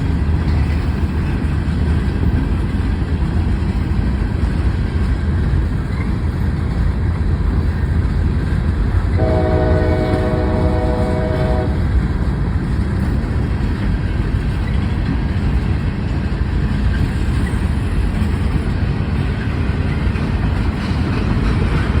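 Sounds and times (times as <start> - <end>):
train rumble: 0.0 - 22.0
train horn blast: 9.1 - 12.0.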